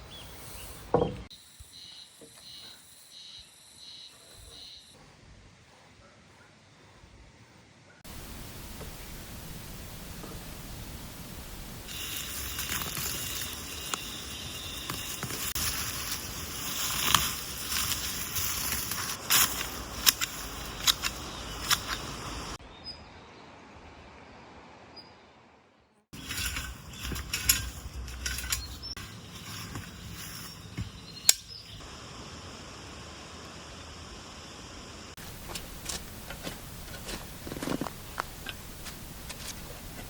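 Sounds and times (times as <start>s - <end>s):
steady hiss: 8.1s - 22.6s, 26.2s - 40.0s.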